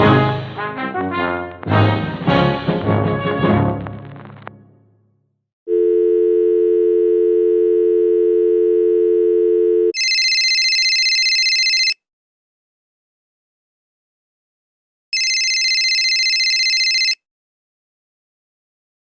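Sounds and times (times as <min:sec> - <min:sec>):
brass music: 0:00.0 - 0:04.8
telephone dial tone: 0:05.7 - 0:12.0, 0:15.2 - 0:17.2.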